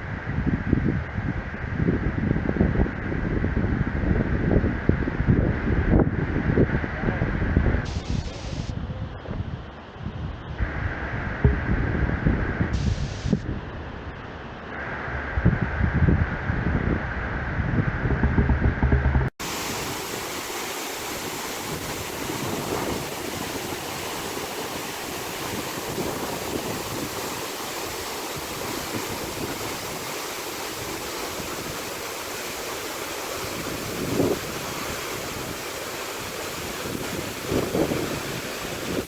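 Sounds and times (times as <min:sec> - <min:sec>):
wind buffeting microphone: 0:00.0 - 0:32.5, 0:33.3 - 0:39.0
short low rumble: 0:10.6 - 0:13.7, 0:14.7 - 0:19.3
waterfall rushing: 0:19.4 - 0:39.0.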